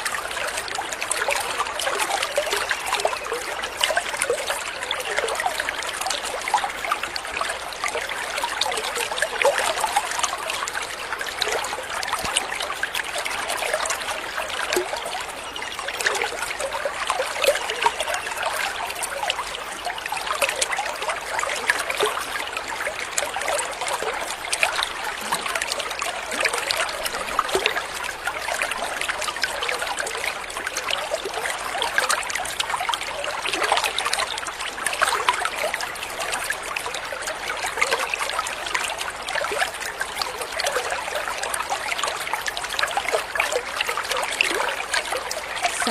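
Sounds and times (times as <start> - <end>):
water running in a stream: 0.0 - 45.9.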